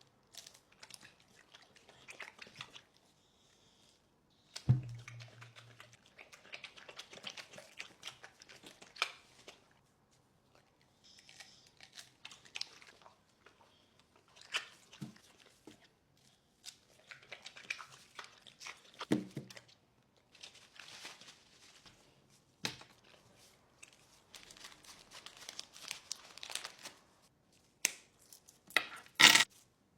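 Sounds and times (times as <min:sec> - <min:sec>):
dog chewing crinkly object: 0:10.5 - 0:13.6, 0:22.9 - 0:27.0.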